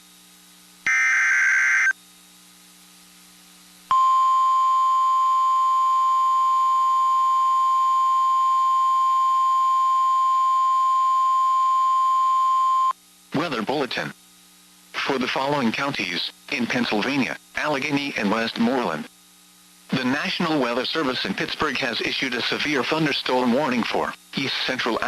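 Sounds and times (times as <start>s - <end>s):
steady warning alarm tone: 0.8s - 2.0s
warbling data noise: 0.8s - 2.0s.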